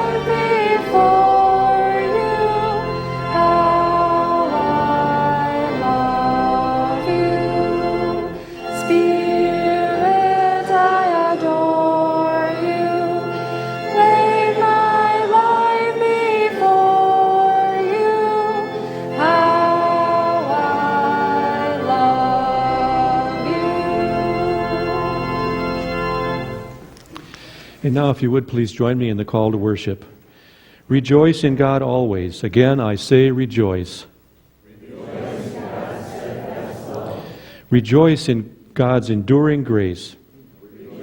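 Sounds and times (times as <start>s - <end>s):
congregation singing a hymn: 0.0s - 27.0s, 34.6s - 41.0s
low accompaniment: 0.0s - 27.1s.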